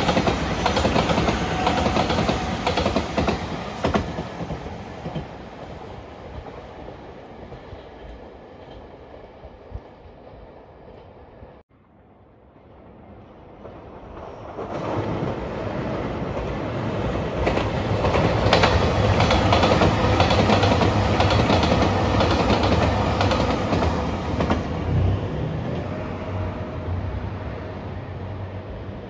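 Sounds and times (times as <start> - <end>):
diesel train rumble: 0.0 - 6.1.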